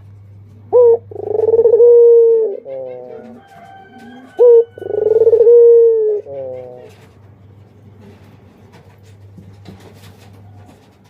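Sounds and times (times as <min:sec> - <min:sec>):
dove cooing: 0:00.7 - 0:07.2.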